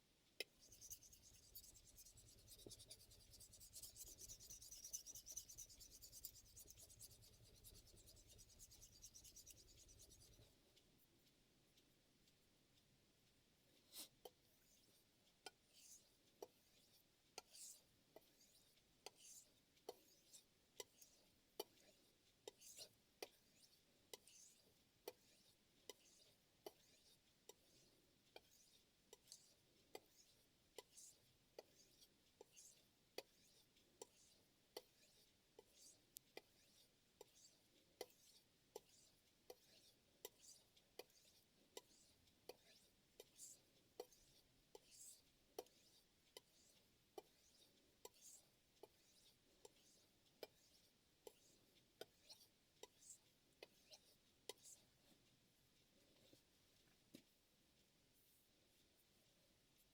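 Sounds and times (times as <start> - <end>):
knife scraping whetstone: 0.6 - 10.3.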